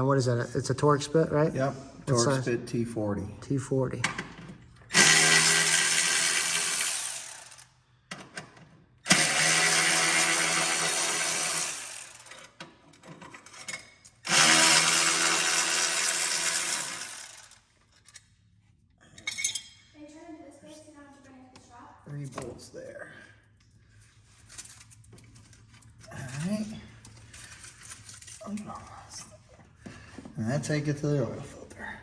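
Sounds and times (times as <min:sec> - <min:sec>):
cordless drill motor whine: 0:04.9 - 0:07.6, 0:09.1 - 0:12.4, 0:14.3 - 0:17.6.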